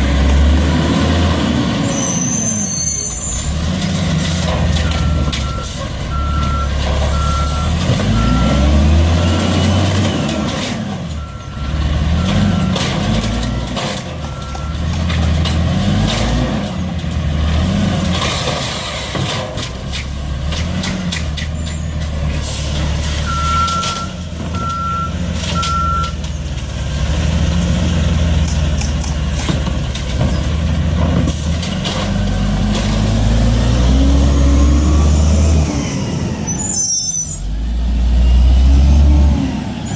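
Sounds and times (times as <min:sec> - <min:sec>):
garbage truck engine revving: 0:00.0 - 0:39.9
reversing beeper: 0:04.8 - 0:10.2, 0:23.2 - 0:26.2.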